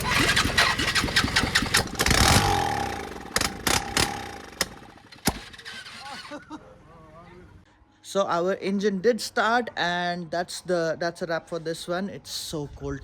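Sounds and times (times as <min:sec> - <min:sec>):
sharp clicks: 0:00.0 - 0:05.6
motorcycle engine starting and revving: 0:00.0 - 0:06.6.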